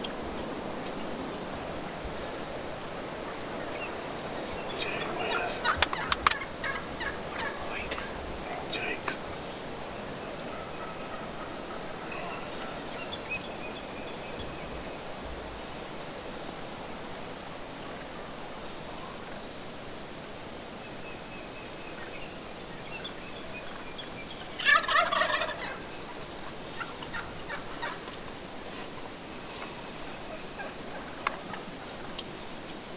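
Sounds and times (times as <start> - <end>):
turkey gobbling: 3.3 - 13.0, 24.4 - 28.4.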